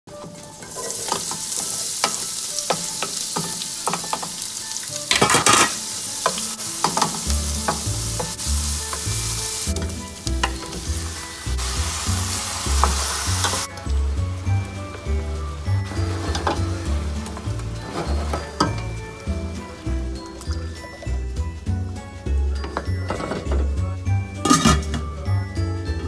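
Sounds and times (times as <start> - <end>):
food sizzling in hot oil: 0.1 - 24.8
wooden spoon scraping pan: 15.8 - 19.8.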